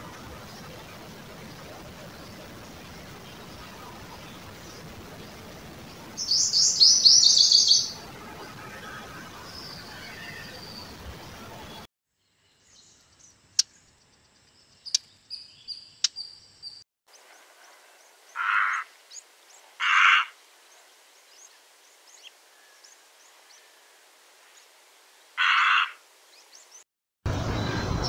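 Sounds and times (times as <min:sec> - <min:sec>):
high thin bird chirps: 0:14.7 - 0:16.8
loud harsh bird calls: 0:18.3 - 0:18.9, 0:19.8 - 0:20.4, 0:25.4 - 0:26.0.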